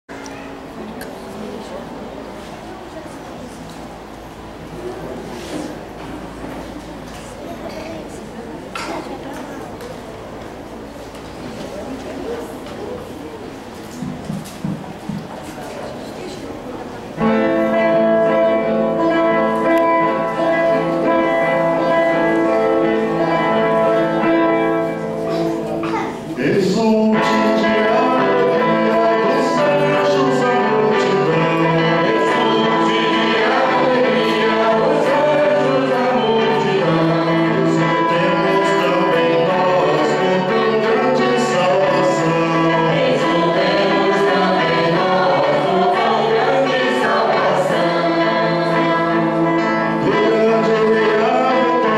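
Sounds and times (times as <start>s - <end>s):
held instrumental chords: 16.6s - 51.9s
choir singing a hymn: 17.2s - 25.7s, 26.4s - 51.9s.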